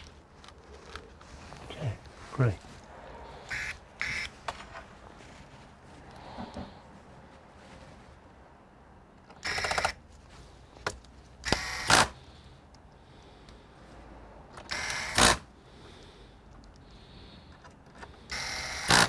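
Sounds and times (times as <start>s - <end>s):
small motorised tool buzzing: 3.5s - 4.3s, 9.4s - 10.0s, 11.4s - 12.2s, 14.7s - 15.5s, 18.3s - 19.0s.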